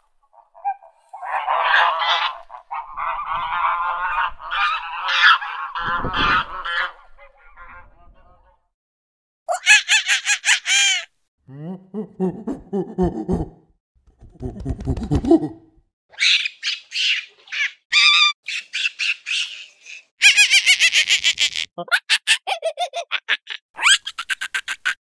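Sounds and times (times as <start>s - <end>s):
monkeys calling: 0.4s - 7.8s, 16.1s - 25.0s.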